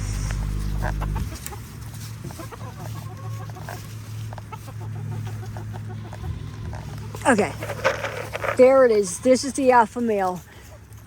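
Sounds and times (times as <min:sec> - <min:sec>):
low rumble: 0:00.0 - 0:01.6
chickens clucking: 0:00.0 - 0:11.0.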